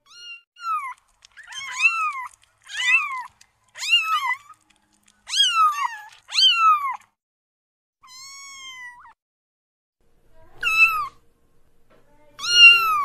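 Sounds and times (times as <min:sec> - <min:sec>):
cat meowing: 0:00.0 - 0:04.7, 0:05.3 - 0:07.2, 0:08.0 - 0:09.2, 0:10.5 - 0:11.2, 0:12.4 - 0:13.0.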